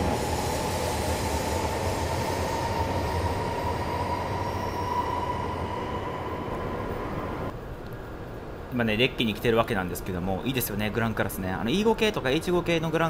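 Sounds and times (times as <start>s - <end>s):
high-speed train rushing: 0.0s - 7.6s
thin train whine: 0.0s - 7.6s.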